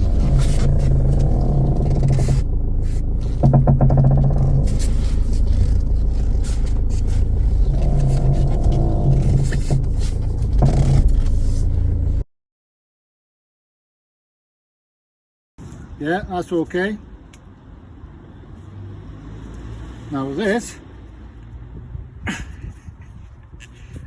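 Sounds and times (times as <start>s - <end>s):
car groaning creaks: 0.0s - 12.2s
low rumble: 0.0s - 12.2s.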